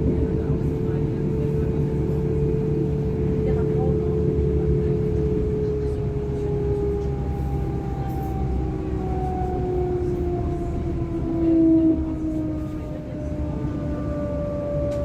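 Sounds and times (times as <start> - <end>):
train rolling rumble: 0.0 - 15.0.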